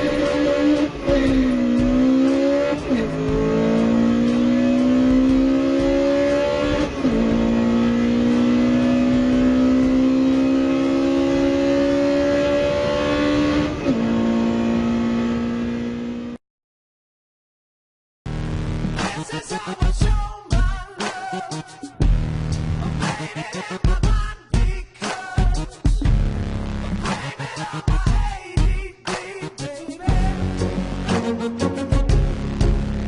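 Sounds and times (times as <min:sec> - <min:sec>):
car engine accelerating: 0:00.0 - 0:16.4.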